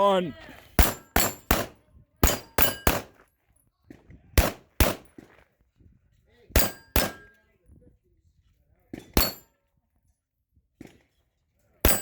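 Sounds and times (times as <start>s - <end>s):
pistol shots: 0.8s - 3.2s, 4.4s - 5.2s, 6.6s - 7.3s
metallic ring of steel targets: 2.3s - 3.0s, 6.6s - 7.4s, 9.0s - 9.5s.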